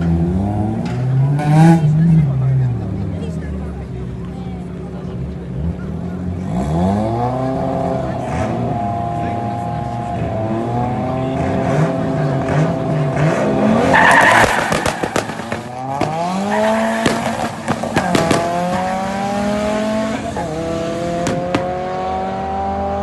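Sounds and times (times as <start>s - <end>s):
race car engine accelerating: 4.9s - 23.0s.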